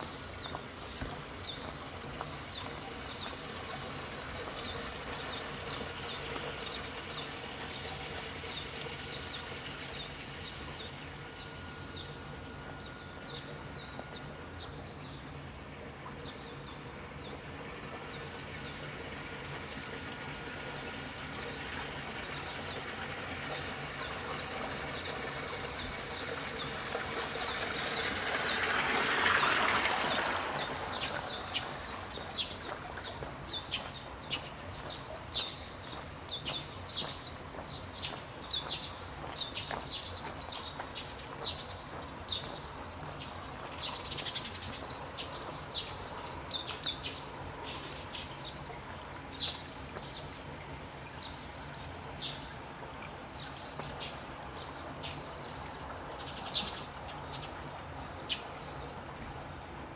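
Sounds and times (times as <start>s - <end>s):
small birds chirping: 30.1s - 59.5s.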